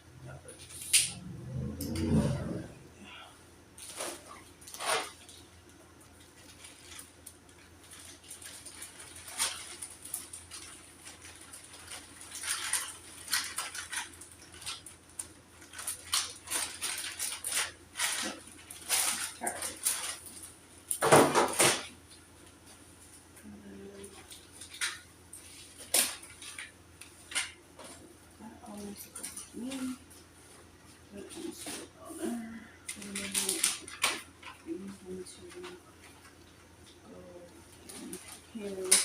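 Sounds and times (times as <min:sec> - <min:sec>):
packaging crinkling and knocking: 0:03.8 - 0:22.0
rustling and clattering of supplies: 0:03.8 - 0:39.0.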